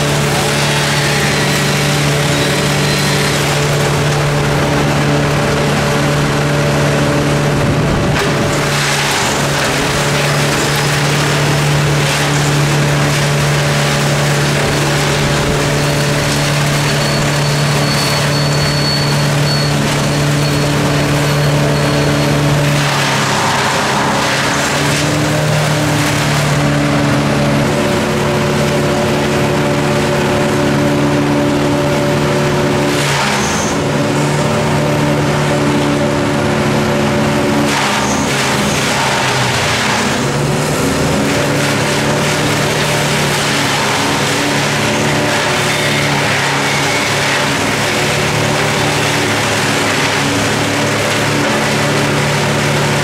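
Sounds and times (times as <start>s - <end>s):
engine-driven machine running: 0.0s - 53.0s.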